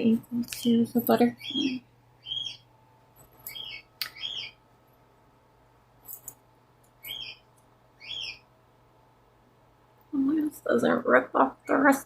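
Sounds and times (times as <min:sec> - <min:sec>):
cockatiel chirping: 0:01.4 - 0:02.7, 0:03.5 - 0:04.6, 0:07.0 - 0:08.4.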